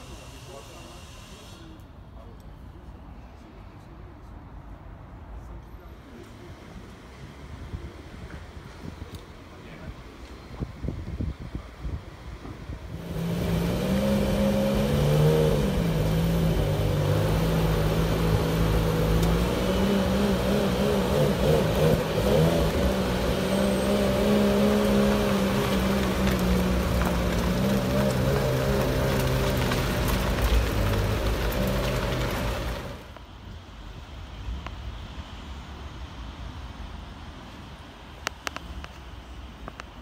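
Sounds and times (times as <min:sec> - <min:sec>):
car engine at low revs: 0:12.9 - 0:33.2.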